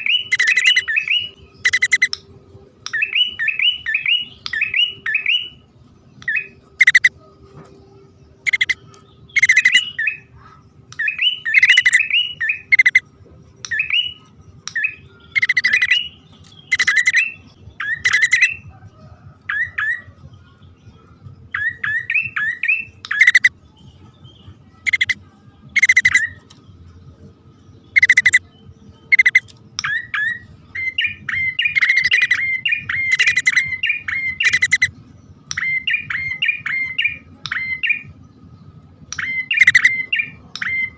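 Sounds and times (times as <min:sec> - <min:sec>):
bird chirps and rattling calls: 0:00.0 - 0:02.2, 0:06.2 - 0:07.1, 0:08.4 - 0:13.0, 0:13.6 - 0:18.7, 0:21.5 - 0:23.5, 0:24.4 - 0:25.2, 0:25.8 - 0:26.7, 0:27.9 - 0:38.1, 0:39.1 - 0:40.9.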